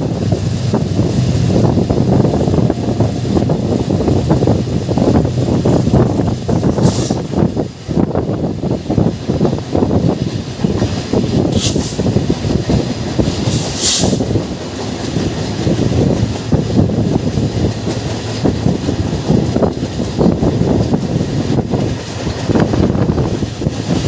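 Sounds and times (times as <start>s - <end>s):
train wheels rumbling and clattering: 0.0s - 24.0s.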